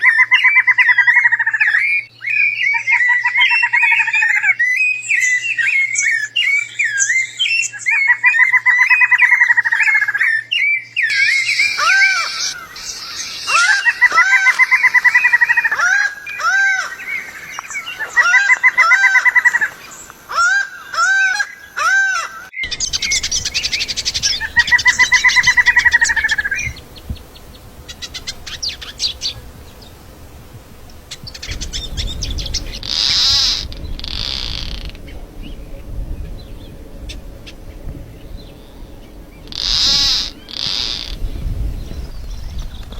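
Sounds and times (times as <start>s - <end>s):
songbirds trilling and whistling: 0.0s - 42.9s
background hiss: 11.2s - 42.9s
low rumble: 22.7s - 42.9s.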